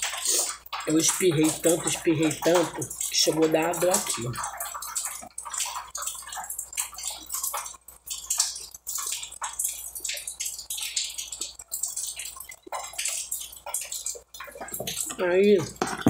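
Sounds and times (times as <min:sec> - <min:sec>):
chewing mouth sounds: 0:00.0 - 0:00.9.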